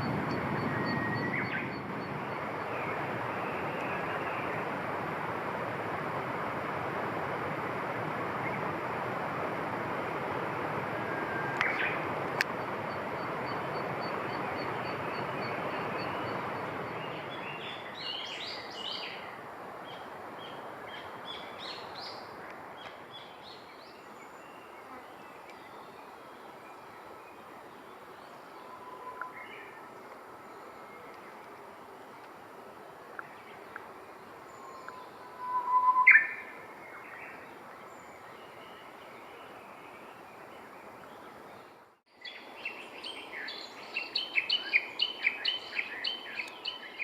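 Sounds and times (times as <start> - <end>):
steady rushing noise: 0.0 - 23.1
songbird singing: 0.0 - 47.0
high ticks: 12.4 - 12.6.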